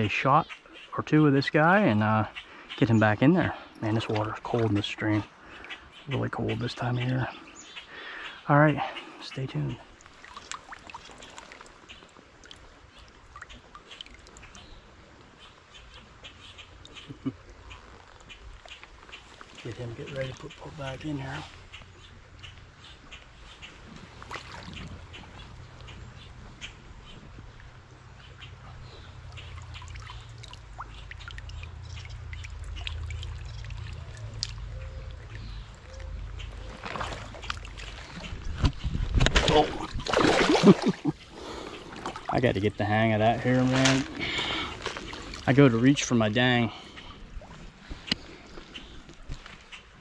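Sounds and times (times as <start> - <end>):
stream water trickling: 0.0 - 50.0
water drips and splashes: 8.9 - 50.0.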